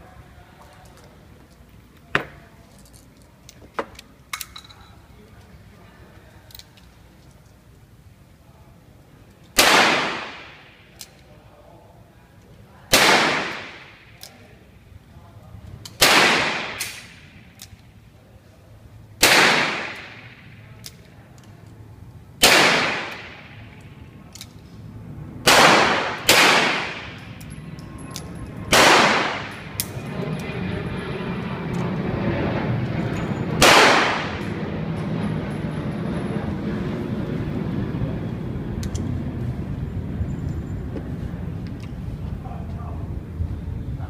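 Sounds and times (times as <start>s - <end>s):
low rumbling noise: 13.1s - 44.0s.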